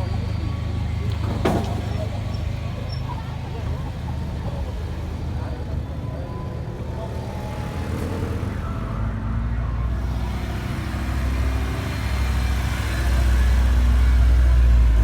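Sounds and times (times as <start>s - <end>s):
car engine and exhaust rumbling: 9.6s - 15.0s.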